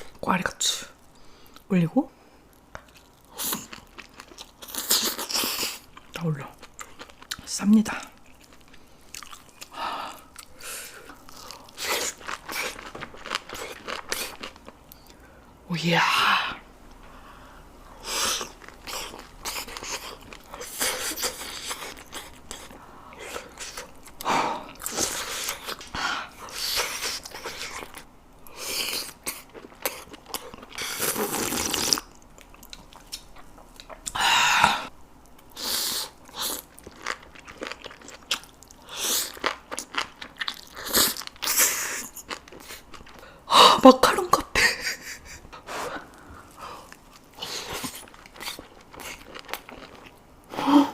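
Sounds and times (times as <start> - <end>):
person chewing crunchy food: 2.6 - 15.2, 18.0 - 43.4, 45.6 - 50.3
crunchy bites and chewing: 47.0 - 50.2.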